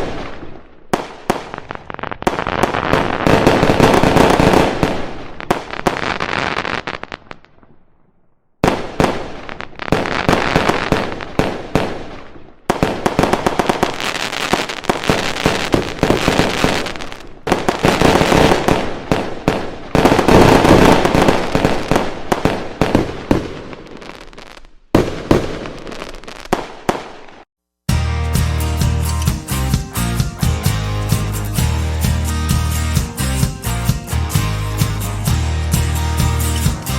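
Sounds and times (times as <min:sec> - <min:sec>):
fireworks crackling and popping: 0:00.0 - 0:07.9, 0:08.6 - 0:27.5.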